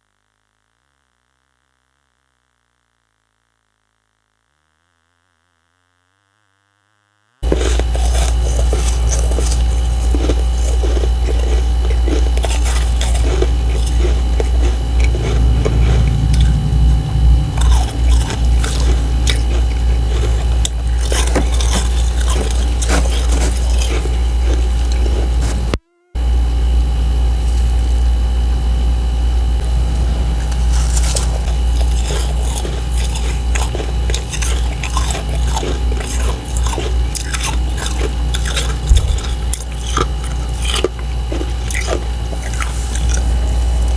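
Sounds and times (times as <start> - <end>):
steady low hum: 0.0 - 43.9
crunching freezer frost: 7.4 - 25.8, 29.5 - 43.9.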